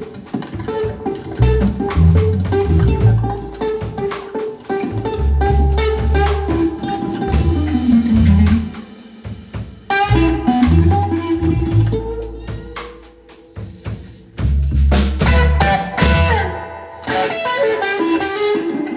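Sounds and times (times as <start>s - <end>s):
falling guitar run: 0.0s - 8.9s, 15.2s - 18.9s
live blues band playing: 0.0s - 18.9s.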